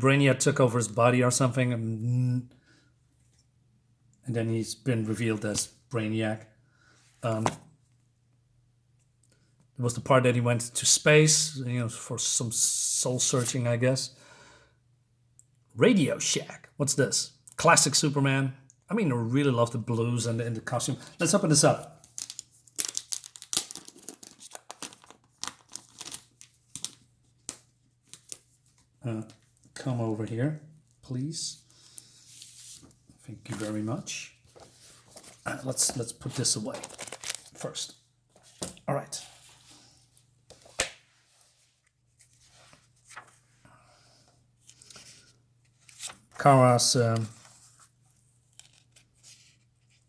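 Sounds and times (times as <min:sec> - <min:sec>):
soft paper rustling: 0:20.7 - 0:30.2, 0:30.8 - 0:43.6, 0:44.2 - 0:50.0
packaging tearing and crinkling: 0:22.1 - 0:27.0, 0:36.8 - 0:37.6.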